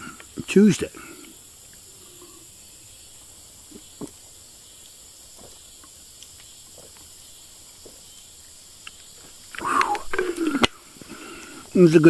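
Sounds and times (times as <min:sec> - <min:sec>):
crickets chirping: 0:00.0 - 0:12.0
faint clicks: 0:05.8 - 0:07.1, 0:08.2 - 0:11.8.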